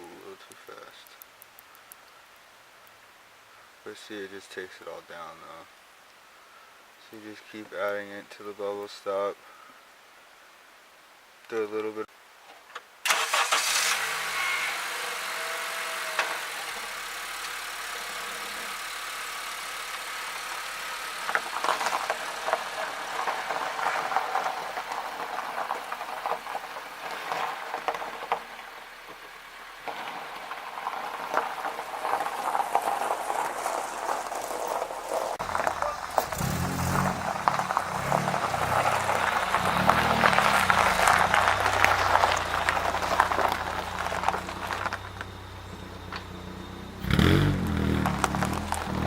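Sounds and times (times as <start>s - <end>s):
car engine starting and idling: 13.1s - 49.0s.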